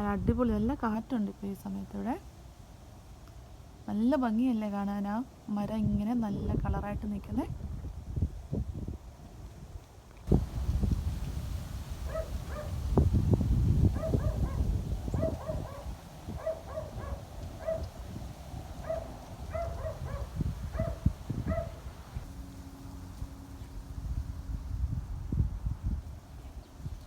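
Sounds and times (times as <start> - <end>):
wind buffeting microphone: 0.0 - 1.1, 5.6 - 27.0.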